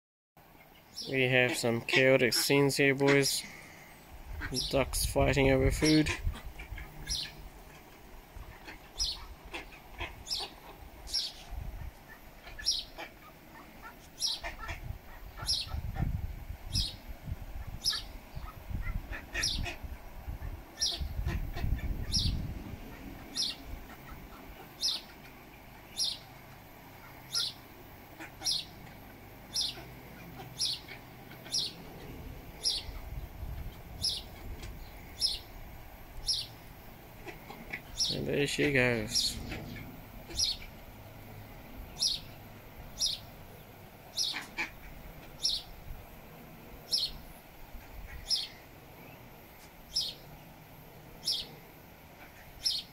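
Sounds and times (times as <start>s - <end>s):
bird chirping: 0.6s - 7.9s, 8.5s - 14.6s, 15.2s - 15.8s, 16.7s - 17.0s, 17.8s - 18.6s, 20.8s - 22.5s, 23.2s - 26.3s, 27.3s - 27.7s, 28.4s - 33.2s, 34.0s - 35.5s, 36.2s - 41.2s, 41.8s - 45.8s, 46.9s - 47.3s, 48.1s - 49.3s, 49.9s - 50.4s, 51.2s - 51.6s, 52.2s - 52.9s.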